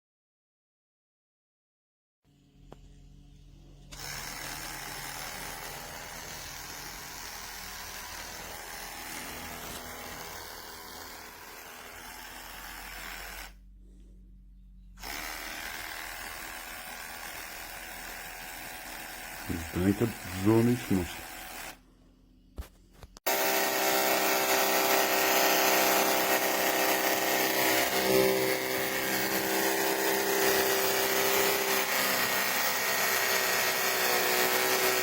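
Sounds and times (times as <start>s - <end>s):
electric hair clipper buzzing: 3.9s - 13.6s, 15.0s - 16.7s, 23.3s - 31.9s.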